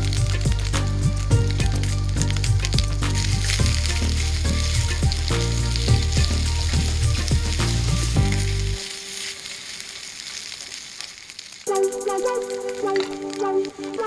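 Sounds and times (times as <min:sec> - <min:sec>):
background music: 0:00.0 - 0:10.0, 0:11.7 - 0:14.0
food sizzling in a frying pan: 0:03.4 - 0:11.7.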